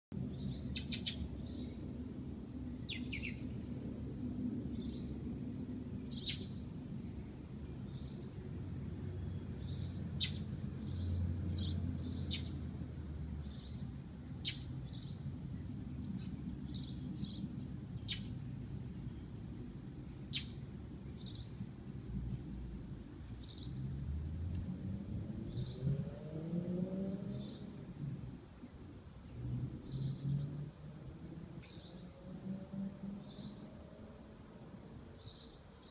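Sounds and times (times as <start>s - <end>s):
low background rumble: 0.1s - 25.7s
small birds chirping: 0.3s - 1.9s, 2.8s - 3.7s, 4.7s - 24.7s, 25.4s - 34.2s, 35.1s - 35.9s.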